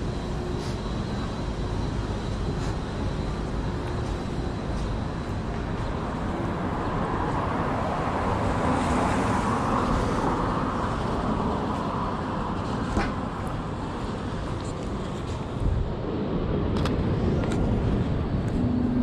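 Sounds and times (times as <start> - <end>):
hum of traffic: 0.0 - 19.0.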